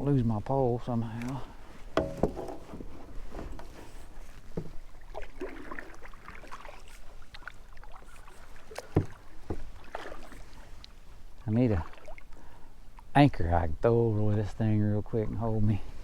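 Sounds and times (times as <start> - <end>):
water splashing and sloshing: 0.9 - 13.1
paddle knocks against hull: 1.9 - 6.6, 8.7 - 10.4.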